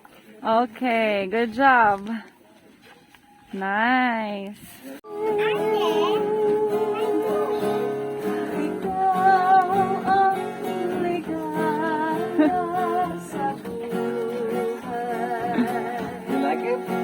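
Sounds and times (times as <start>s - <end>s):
person singing with vibrato: 5.0s - 17.0s
strummed acoustic guitar: 5.1s - 17.0s.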